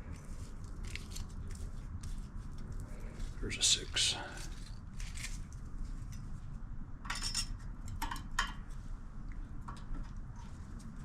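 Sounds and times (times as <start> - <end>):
low steady hum: 0.0 - 11.0
metal tools clinking and scraping: 7.1 - 8.2.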